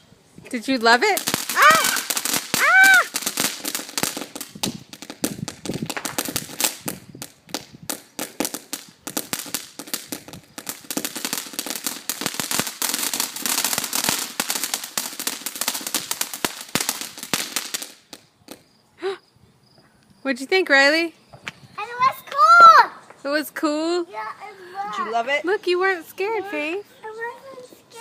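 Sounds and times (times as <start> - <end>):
firework crackling pops: 0.5 - 18.8, 21.3 - 23.2.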